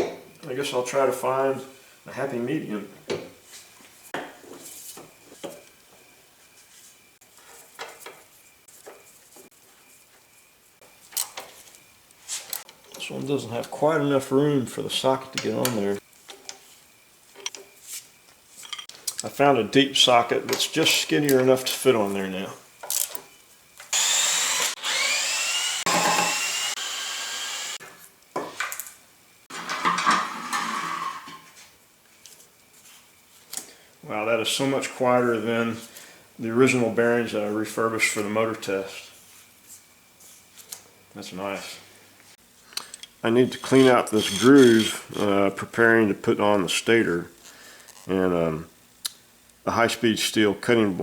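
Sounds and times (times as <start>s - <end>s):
metal clinks and scrapes of tools: 18.6s - 19.3s, 42.9s - 45.3s
spindle whirring: 23.9s - 27.8s.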